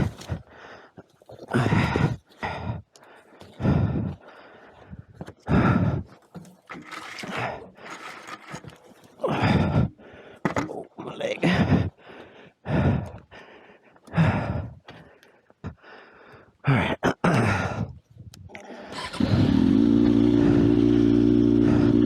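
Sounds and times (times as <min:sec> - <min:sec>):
man grunting and breathing hard: 0:00.0 - 0:04.8, 0:05.4 - 0:06.2, 0:09.2 - 0:10.6, 0:11.3 - 0:14.9, 0:15.6 - 0:18.0, 0:18.6 - 0:22.0.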